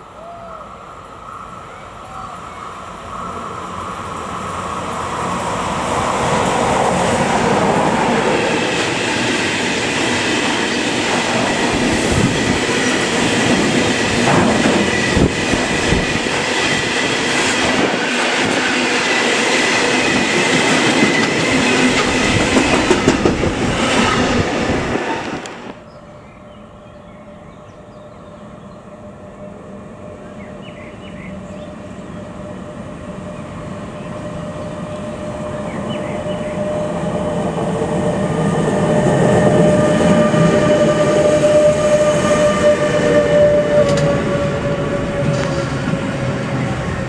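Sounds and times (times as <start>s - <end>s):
train wheels clattering on rails: 2.6s - 25.9s, 35.6s - 47.0s.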